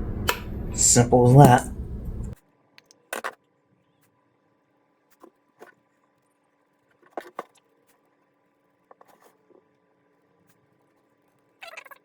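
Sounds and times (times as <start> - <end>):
faint steady hum: 0.0 - 2.4.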